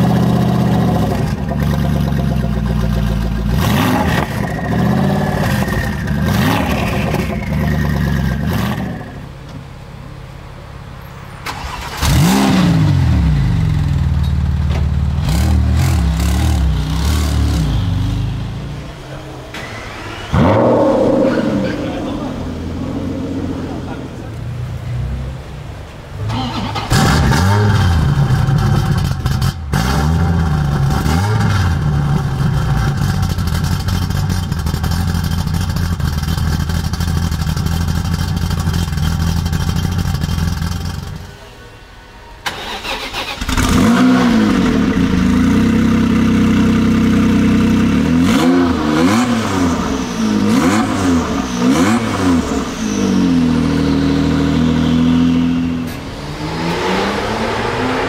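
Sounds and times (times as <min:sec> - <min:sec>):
car engine revving: 0:00.0 - 0:10.8, 0:11.4 - 0:41.3, 0:42.5 - 0:58.0
car engine starting and idling: 0:00.0 - 0:58.0.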